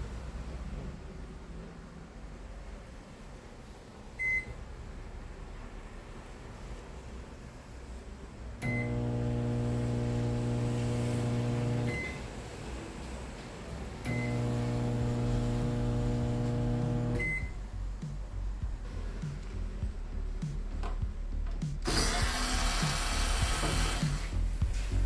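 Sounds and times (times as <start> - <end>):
microwave loud low buzzing hum: 8.6 - 12.3, 14.1 - 21.2
microwave key beep: 8.7 - 9.1, 11.7 - 12.2, 14.1 - 14.8, 17.0 - 17.6.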